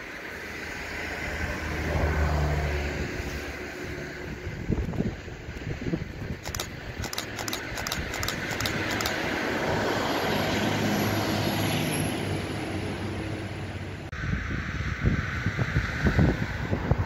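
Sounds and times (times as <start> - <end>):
electric train passing: 0.0 - 17.0
faint high clicks: 6.4 - 9.2.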